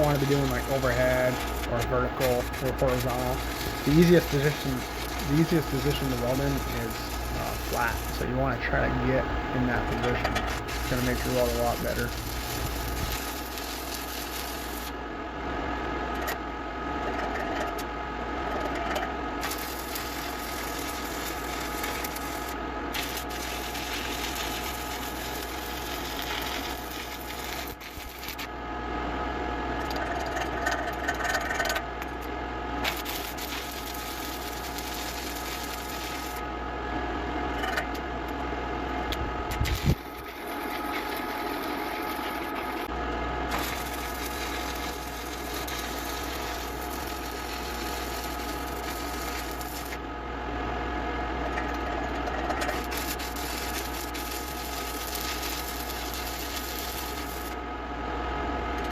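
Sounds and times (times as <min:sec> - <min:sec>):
welding arc crackling and hissing: 0:00.0 - 0:15.0, 0:19.4 - 0:28.6, 0:32.8 - 0:36.5, 0:39.0 - 0:50.0, 0:51.6 - 0:57.6
steady hum: 0:00.0 - 0:15.4, 0:31.9 - 0:58.7.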